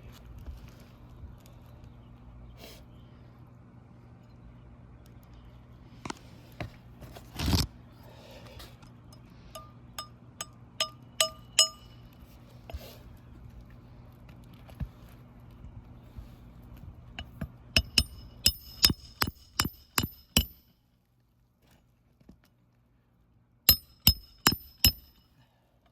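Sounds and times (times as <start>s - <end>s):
hammer striking roofing nails: 17.8s - 20.6s, 23.7s - 25.2s.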